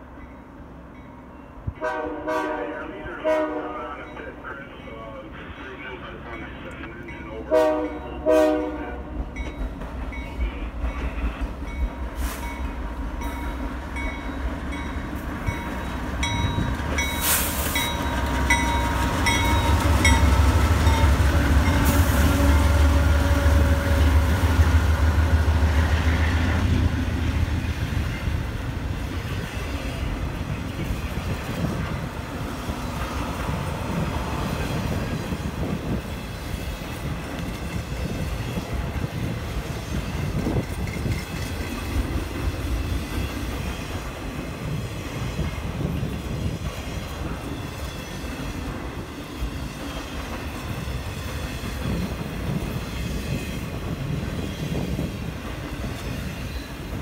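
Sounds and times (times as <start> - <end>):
train engine rumble: 0.0 - 57.0
train horn blasts: 1.8 - 4.0, 7.5 - 9.3, 21.1 - 24.3.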